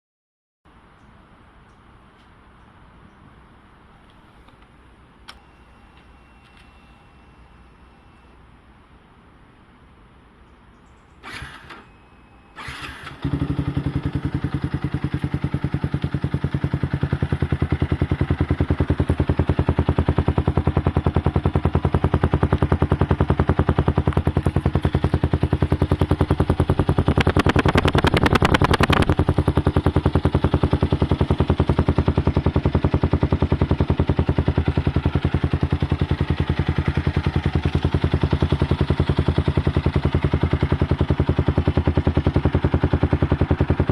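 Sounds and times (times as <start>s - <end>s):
engine cranking: 11.2s - 11.9s, 12.6s - 13.8s, 26.3s - 29.5s
motorcycle engine idling: 12.6s - 43.9s.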